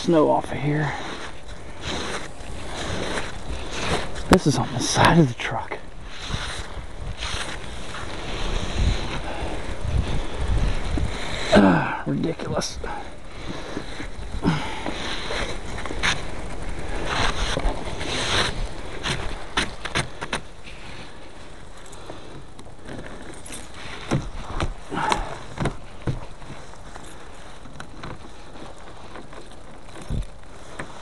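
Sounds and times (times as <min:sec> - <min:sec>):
wet snow being scraped: 0:00.0 - 0:21.8
crunches and knocks: 0:21.6 - 0:31.0.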